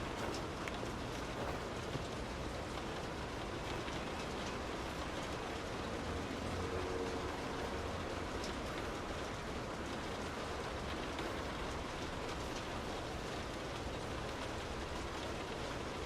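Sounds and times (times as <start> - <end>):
sharp raindrop ticks: 0.0 - 16.0
steady rain hiss: 0.0 - 16.0.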